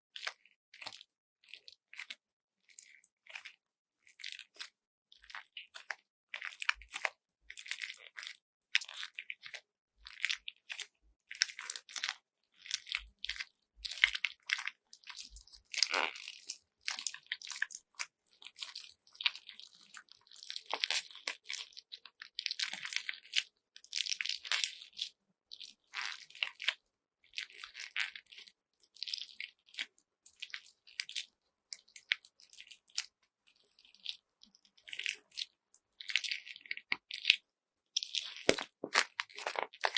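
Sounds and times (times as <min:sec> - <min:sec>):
slime squishing: 0:00.1 - 0:37.4, 0:38.0 - 0:39.9
beads crunching in slime: 0:38.0 - 0:39.9.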